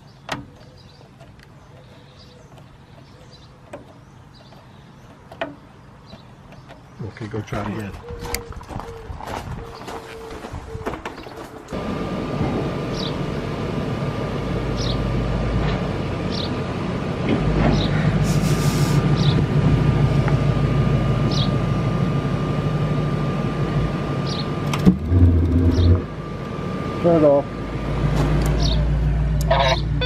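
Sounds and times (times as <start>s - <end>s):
furnace blower motor humming: 11.7s - 29.5s.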